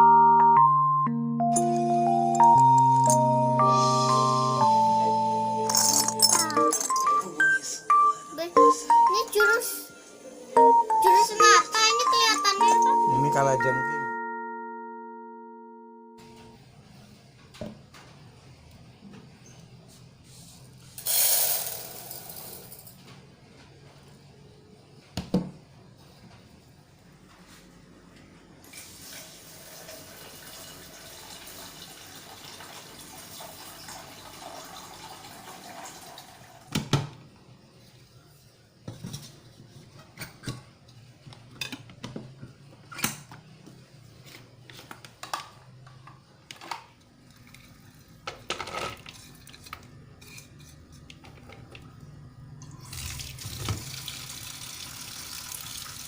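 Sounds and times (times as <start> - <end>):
dishes clinking: 5.7 - 7.6
tap water running into sink: 52.8 - 56.0.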